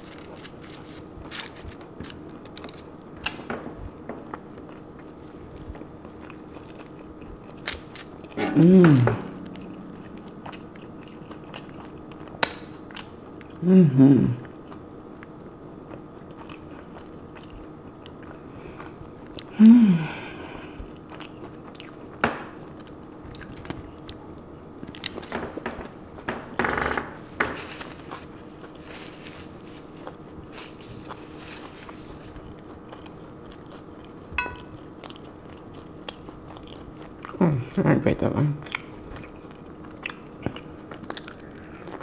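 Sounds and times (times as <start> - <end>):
small clicks and crinkles: 0.0 - 3.5, 24.8 - 26.0
person chewing: 4.3 - 13.6, 14.2 - 19.6, 20.4 - 25.3, 27.8 - 37.5, 38.6 - 42.0
low sound falling in pitch: 8.4 - 11.8.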